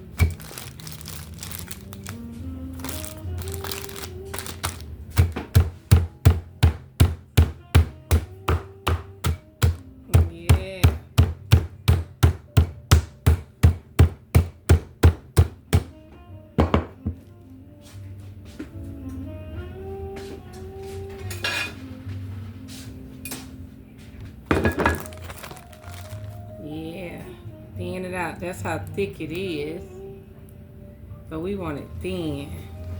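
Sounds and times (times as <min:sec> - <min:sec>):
meat pounded on a board: 0:04.4 - 0:16.0, 0:16.6 - 0:17.2.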